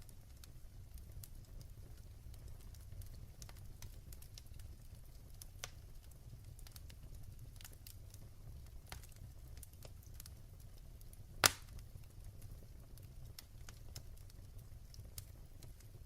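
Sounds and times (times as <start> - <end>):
wood fire burning: 0.0 - 16.0
loud sharp pop: 11.4 - 11.7.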